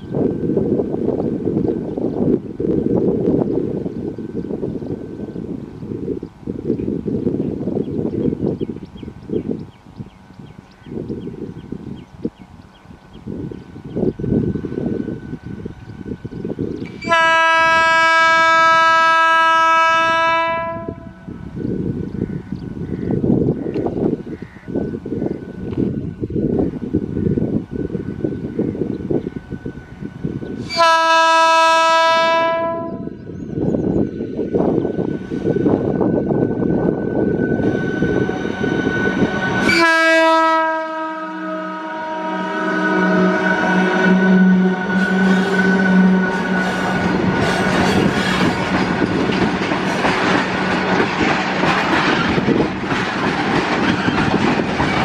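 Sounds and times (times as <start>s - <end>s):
train rumbling and clattering: 0.0s - 55.0s
locomotive horn blast: 17.0s - 21.2s, 30.6s - 33.1s, 39.6s - 48.5s
low rumbling noise: 40.6s - 54.9s
background music chord: 41.3s - 47.1s.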